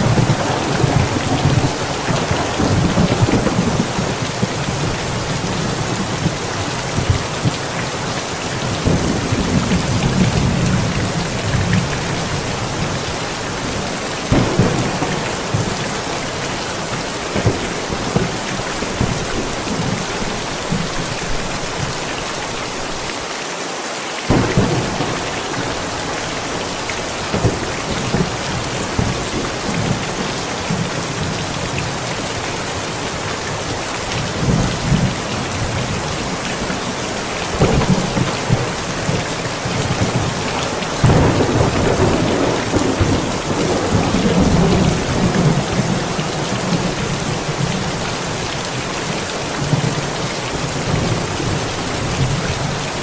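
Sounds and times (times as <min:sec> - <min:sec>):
thunder rumbling: 0:00.0 - 0:23.0, 0:24.3 - 0:53.0
steady rain: 0:00.0 - 0:53.0.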